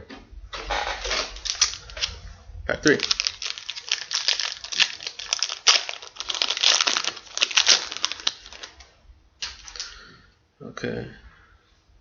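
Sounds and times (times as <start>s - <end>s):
wrapper being torn and crinkled: 0.9s - 2.2s, 2.8s - 9.9s.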